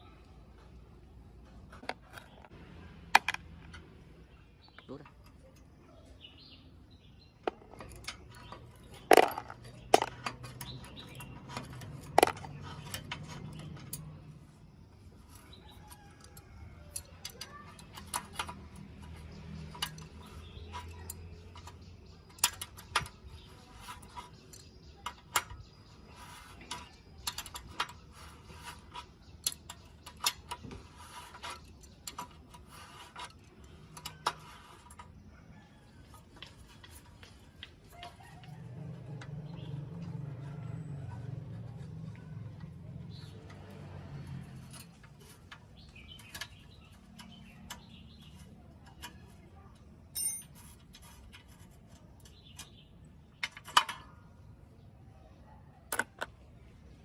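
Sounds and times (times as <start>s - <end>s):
metal tools clinking and tapping: 7.4s - 14.4s, 15.2s - 35.2s, 36.1s - 54.4s.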